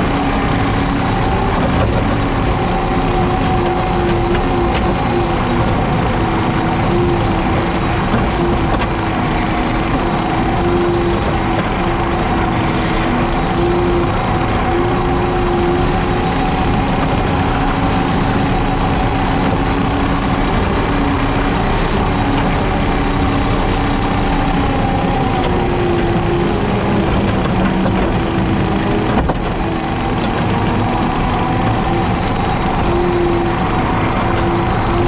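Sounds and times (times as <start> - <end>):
diesel engine running: 0.0 - 35.0
mower cutting grass: 0.0 - 35.0.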